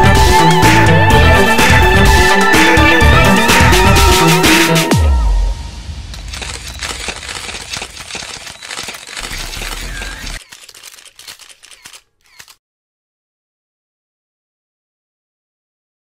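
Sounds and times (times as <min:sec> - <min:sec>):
camera shutters clicking: 0:06.2 - 0:12.6.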